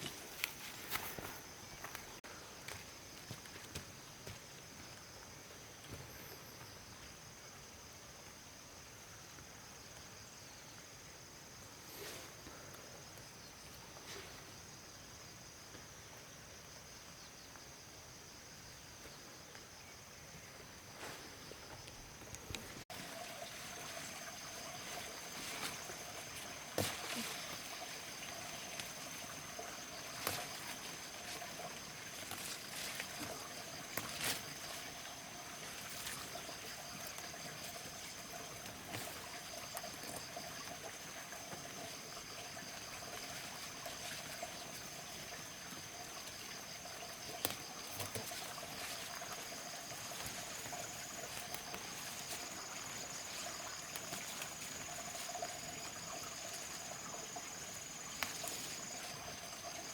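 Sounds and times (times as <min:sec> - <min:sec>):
crickets chirping: 0:00.0 - 0:59.9
water trickling: 0:22.5 - 0:59.9.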